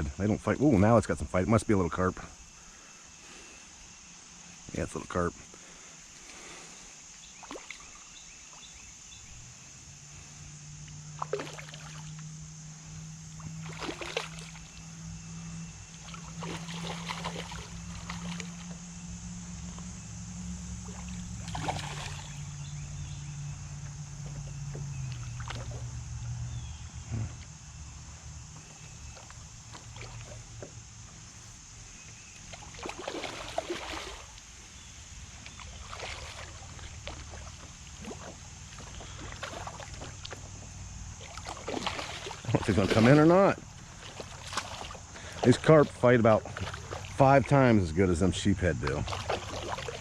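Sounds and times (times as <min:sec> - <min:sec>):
insect chirring: 0:00.0 - 0:50.0
fish splashing in water: 0:07.3 - 0:08.8, 0:11.1 - 0:12.4, 0:13.0 - 0:19.0, 0:20.6 - 0:23.1, 0:24.2 - 0:26.1, 0:28.8 - 0:30.8, 0:32.0 - 0:47.7, 0:48.4 - 0:50.0
motor droning: 0:08.1 - 0:50.0.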